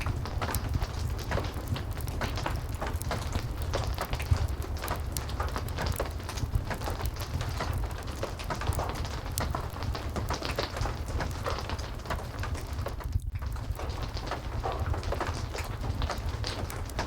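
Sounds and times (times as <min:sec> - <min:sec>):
fire crackling: 0:00.0 - 0:17.0
heavy rain: 0:00.0 - 0:17.0.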